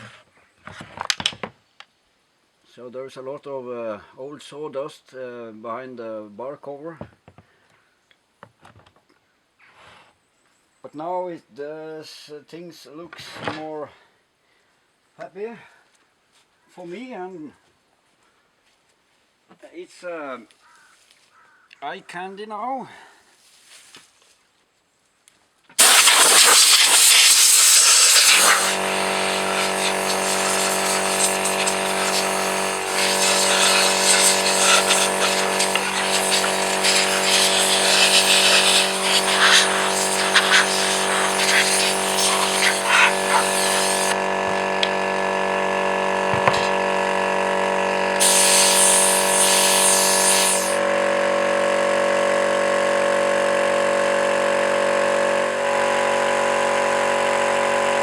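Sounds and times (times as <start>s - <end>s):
pressure washer motor hum: 25.8s - 58.0s
water jet hissing: 25.8s - 58.0s.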